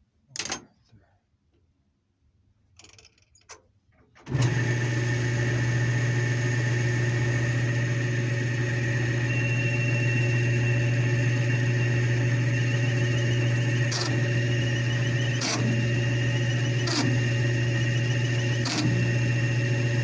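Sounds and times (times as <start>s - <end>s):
lathe motor humming: 4.3s - 20.0s.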